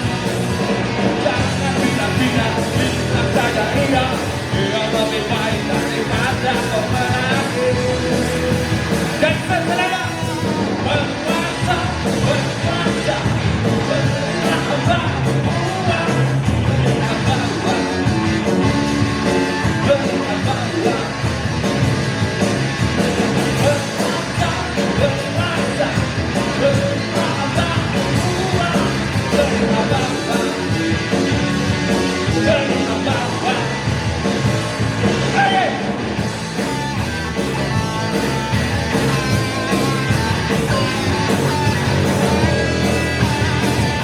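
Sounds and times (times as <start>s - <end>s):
live band playing: 0.0s - 44.0s
person singing: 1.1s - 21.2s, 23.6s - 31.0s, 32.0s - 34.7s.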